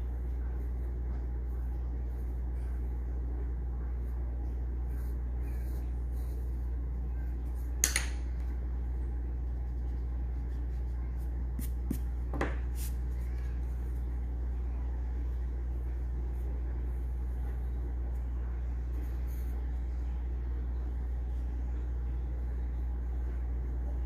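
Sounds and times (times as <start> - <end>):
steady low hum: 0.0 - 24.0
pencil scratching on paper: 3.9 - 7.7, 9.4 - 12.1, 18.8 - 19.8.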